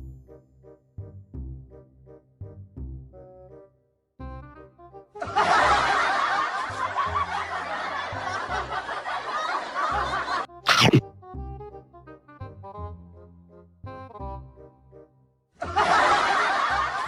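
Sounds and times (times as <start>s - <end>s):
background music: 0.0s - 17.0s
canned laughter: 5.2s - 11.0s, 15.6s - 17.0s
sharp sound effect: 10.7s - 11.0s.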